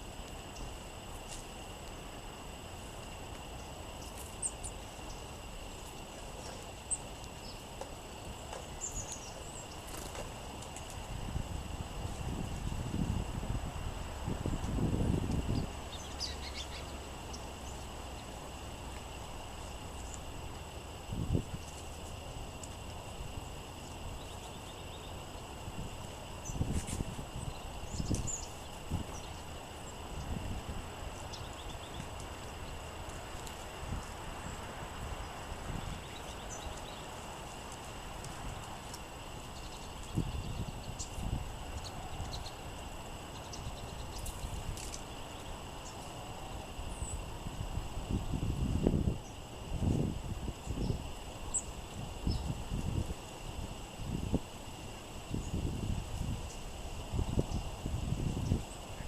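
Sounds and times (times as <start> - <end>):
songbirds chipping and twittering: 0.0 - 59.0
songbird chip notes: 6.1 - 10.8, 14.5 - 20.8
wind gusting on microphone: 11.0 - 16.2, 20.7 - 21.7, 25.4 - 31.3, 38.4 - 59.0.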